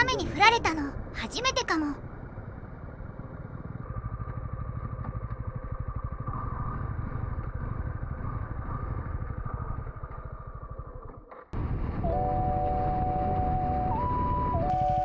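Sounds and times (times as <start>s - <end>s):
motorcycle engine running: 1.8s - 12.0s.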